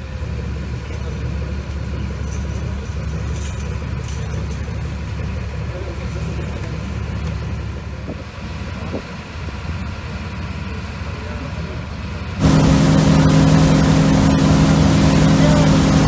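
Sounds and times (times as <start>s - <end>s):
boat engine running: 0.0s - 16.0s
water and wind noise: 5.1s - 10.5s, 12.4s - 16.0s.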